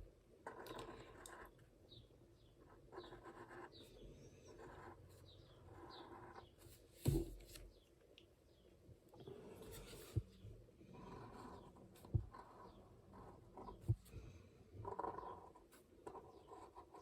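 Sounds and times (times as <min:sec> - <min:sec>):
pen scratching on paper: 0:00.4 - 0:01.5, 0:02.6 - 0:03.8, 0:04.5 - 0:05.0, 0:05.6 - 0:06.5, 0:11.0 - 0:14.0, 0:14.8 - 0:17.0.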